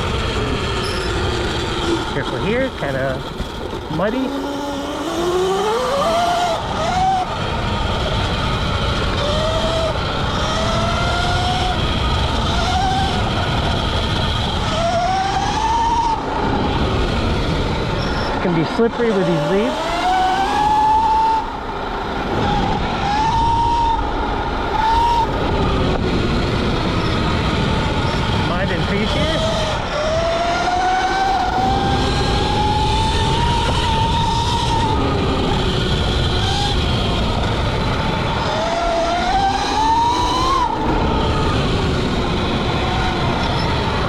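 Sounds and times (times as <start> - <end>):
electric motorbike drivetrain whining: 0.0 - 44.0
rumble of tyres and wind: 0.0 - 44.0.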